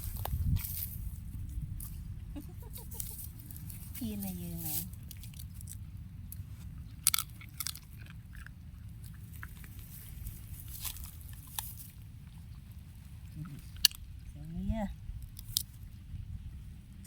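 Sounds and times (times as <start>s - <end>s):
animal chewing and crunching food: 0.0s - 14.3s, 15.0s - 17.0s.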